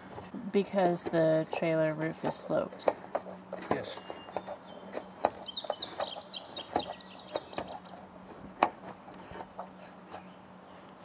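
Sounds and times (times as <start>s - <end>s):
knocks and taps on roof: 0.8s - 9.8s
songbird chirping: 1.4s - 8.5s.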